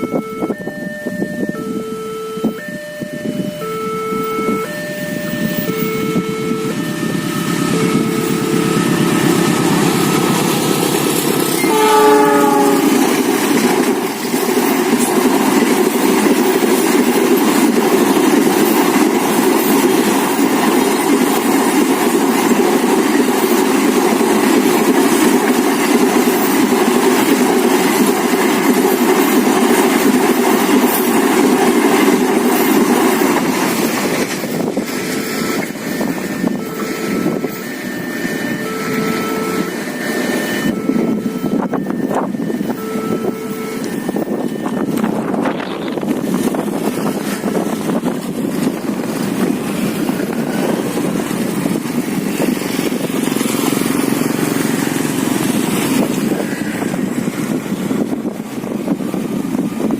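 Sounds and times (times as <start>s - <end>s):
train wheels clacking over rail joints: 6.7s - 59.9s
train horn blowing: 11.4s - 13.4s, 35.2s - 46.6s.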